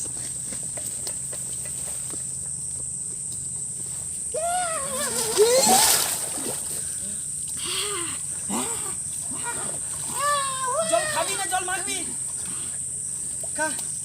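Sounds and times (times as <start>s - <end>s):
cricket and insect chorus: 0.0s - 14.0s
wavering vocal cry: 4.3s - 6.5s, 7.6s - 11.7s.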